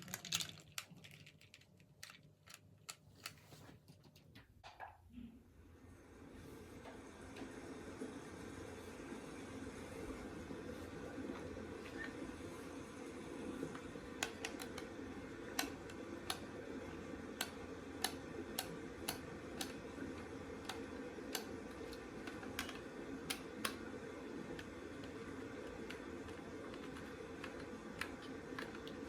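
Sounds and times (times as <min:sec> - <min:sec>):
plastic toy parts clicking: 0:00.0 - 0:03.4.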